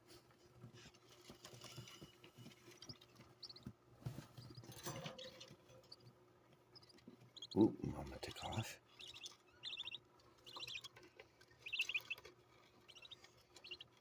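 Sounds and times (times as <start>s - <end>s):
budgerigars scratching and rustling: 0.0s - 14.0s
high bird chirps: 6.7s - 7.7s, 8.3s - 11.0s, 11.6s - 12.2s, 12.9s - 13.9s.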